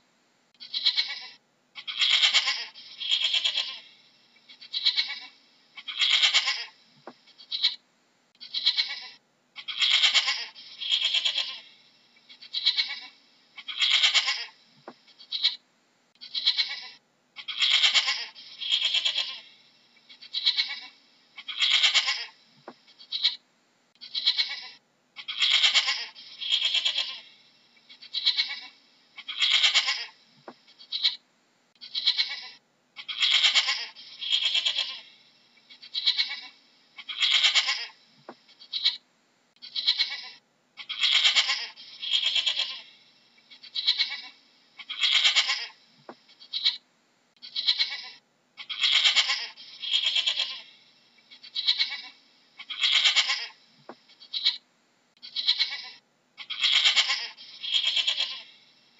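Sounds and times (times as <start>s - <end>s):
goat bleating: 0.6s - 3.9s, 4.5s - 6.8s, 7.4s - 7.8s, 8.4s - 11.7s, 12.3s - 14.6s, 15.2s - 15.6s, 16.2s - 22.4s, 23.0s - 23.4s, 24.0s - 30.2s, 30.8s - 31.2s, 31.8s - 39.0s, 39.6s - 46.8s, 47.4s - 54.6s, 55.2s - 58.6s.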